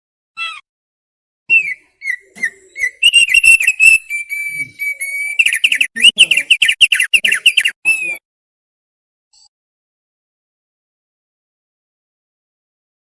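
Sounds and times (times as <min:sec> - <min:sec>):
bird singing whistled notes: 0:01.5 - 0:08.2.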